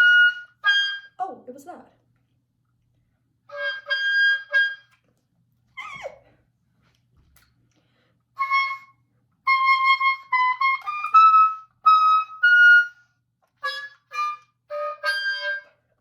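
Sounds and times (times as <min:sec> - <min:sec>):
oboe playing a phrase: 0:13.6 - 0:15.8.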